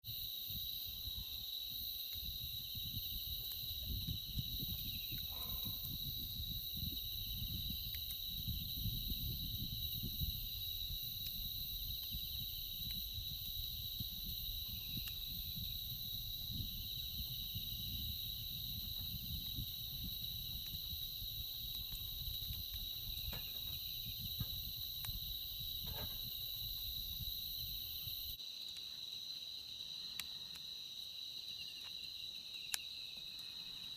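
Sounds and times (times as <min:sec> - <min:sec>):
insects chirring: 0:00.0 - 0:33.9
faint clicks: 0:30.0 - 0:30.7.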